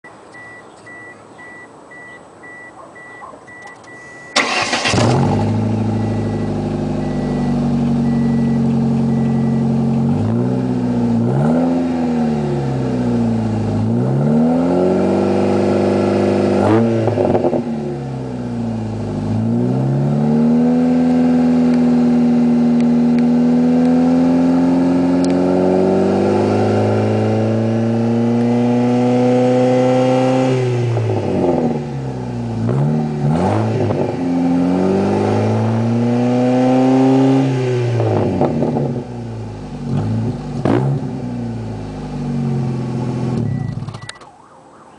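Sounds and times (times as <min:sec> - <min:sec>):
electronic beep: 0:00.3 - 0:04.4, 0:05.9 - 0:09.8, 0:43.4 - 0:44.9
car engine starting and revving: 0:04.0 - 0:44.2.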